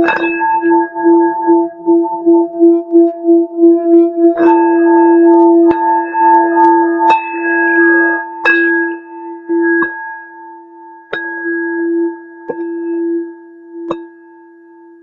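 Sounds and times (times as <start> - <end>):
singing bowl ringing tone: 0.0 - 15.0
sharp knocks on singing bowl: 9.7 - 10.0, 12.4 - 13.0, 13.8 - 14.2.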